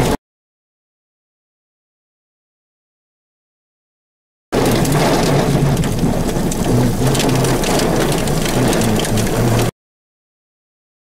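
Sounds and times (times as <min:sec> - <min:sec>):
heavy rain on vehicle: 0:04.6 - 0:09.7
low rumble: 0:04.6 - 0:09.7.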